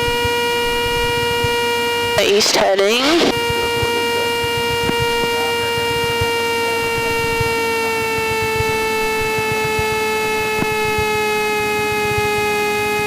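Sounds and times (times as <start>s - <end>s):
airplane engine in cabin: 0.0s - 13.0s
stall warning horn: 0.0s - 13.0s.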